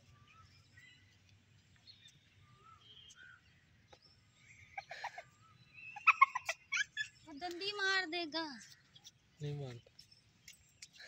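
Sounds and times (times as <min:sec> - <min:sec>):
faint bird chirps: 0:00.0 - 0:08.0.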